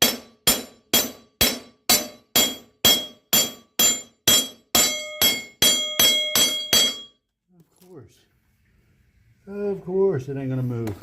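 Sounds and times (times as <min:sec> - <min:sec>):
hammer striking metal: 0:00.0 - 0:07.2.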